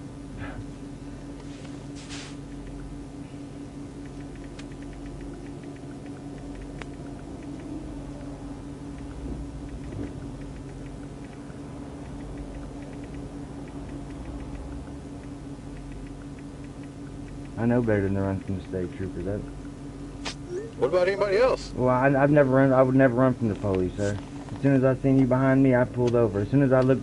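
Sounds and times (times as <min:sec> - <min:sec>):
car engine humming: 0:00.0 - 0:27.0
faint ticks: 0:02.4 - 0:02.9, 0:03.9 - 0:18.8.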